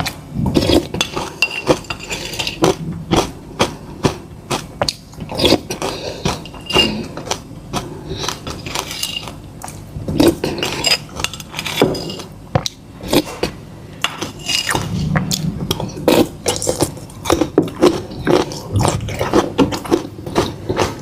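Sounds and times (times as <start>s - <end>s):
utensils clinking on dishes: 0.6s - 2.7s, 5.4s - 7.2s, 8.6s - 9.4s, 10.3s - 12.4s, 14.0s - 14.8s
close-miked chewing: 15.1s - 21.0s.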